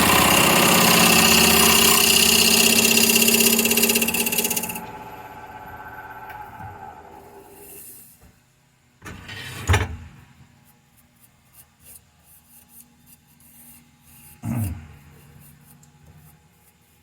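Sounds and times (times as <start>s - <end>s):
wood lathe motor hum: 0.0s - 7.8s.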